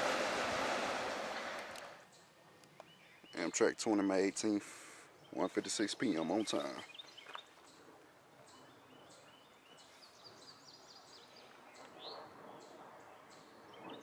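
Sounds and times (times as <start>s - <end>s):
rural background hiss: 0.0s - 8.5s
faint birds chirping: 1.4s - 14.0s.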